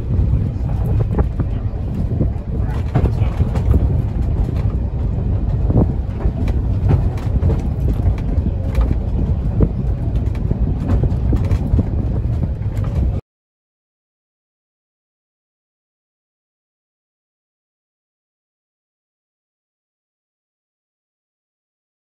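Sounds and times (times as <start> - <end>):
knocks and clanks: 0.0 - 13.2
train rumbling: 0.0 - 13.2.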